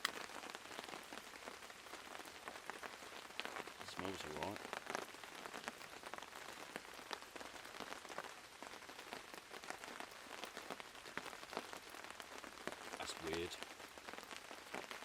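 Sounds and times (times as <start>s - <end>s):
steady rain: 0.0s - 15.0s
drops and drips landing close: 2.4s - 6.2s.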